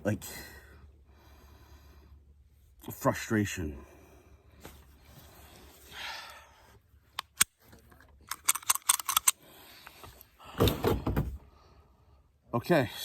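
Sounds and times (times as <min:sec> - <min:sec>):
small metallic clicks and rattles: 0:07.2 - 0:10.3.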